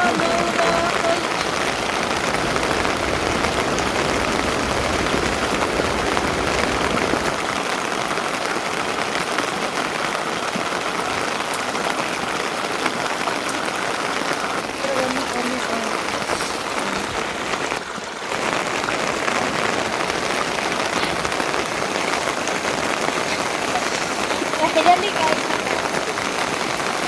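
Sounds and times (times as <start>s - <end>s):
rain falling: 0.0s - 27.0s.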